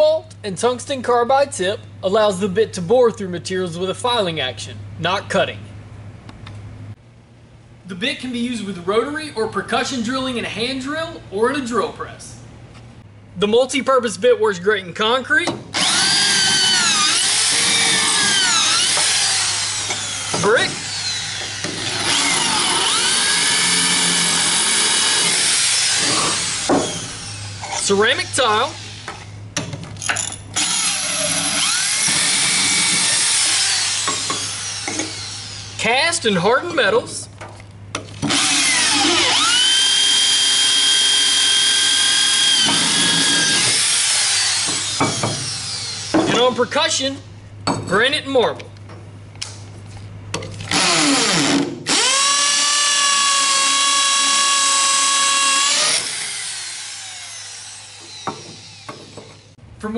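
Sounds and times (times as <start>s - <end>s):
power drill grinding into tile: 15.8s - 27.8s, 38.3s - 46.1s, 50.7s - 59.1s.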